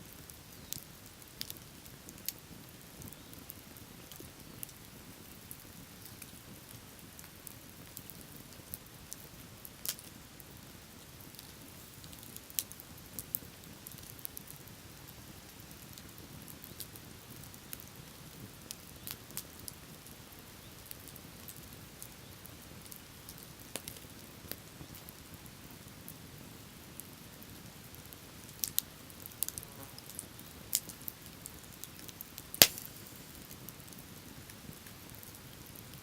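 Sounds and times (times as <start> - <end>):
bonfire crackling and popping: 0.0 - 36.0.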